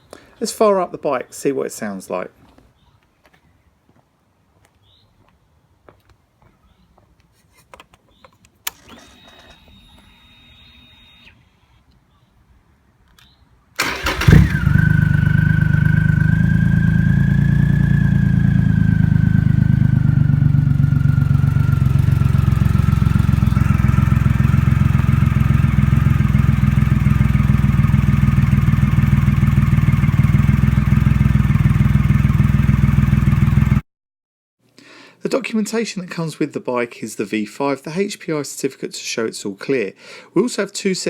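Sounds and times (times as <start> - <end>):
motorcycle engine starting and idling: 8.6 - 11.5, 13.8 - 33.8.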